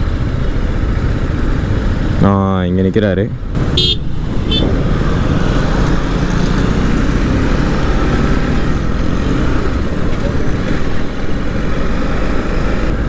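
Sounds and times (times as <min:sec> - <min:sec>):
motorcycle engine and road noise: 0:00.0 - 0:13.0
wind rushing over microphone: 0:03.4 - 0:13.0.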